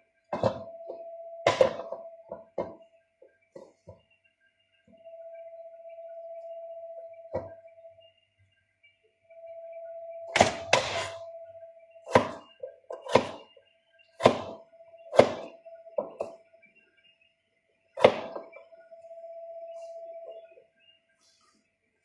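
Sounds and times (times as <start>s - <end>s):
mid-pitched hum: 18.4s - 21.0s.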